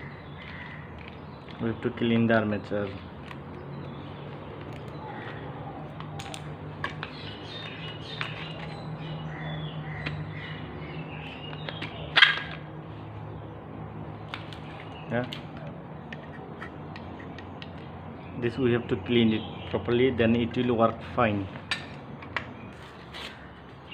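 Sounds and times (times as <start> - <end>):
crow cawing: 0.0 - 1.0, 5.0 - 5.8.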